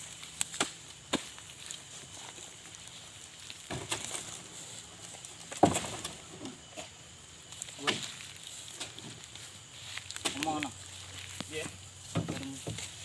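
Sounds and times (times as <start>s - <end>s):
fruit bunches thudding into truck: 3.7s - 4.4s, 5.4s - 6.6s.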